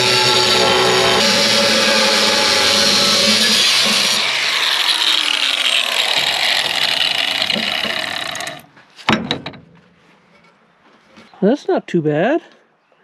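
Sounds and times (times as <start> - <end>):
power tool cutting steel: 0.0 - 8.7
sharp metallic knocks: 0.0 - 9.8.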